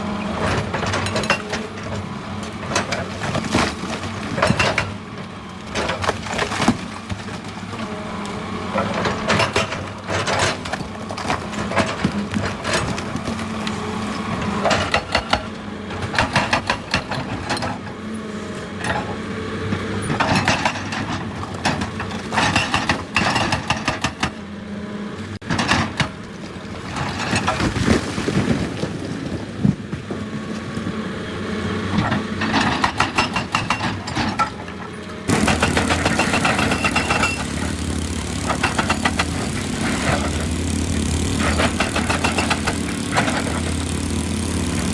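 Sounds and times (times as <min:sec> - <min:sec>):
diesel engine running: 0:00.0 - 0:27.7, 0:28.8 - 0:44.9
rock and earth crunching: 0:08.7 - 0:14.7, 0:34.0 - 0:44.9.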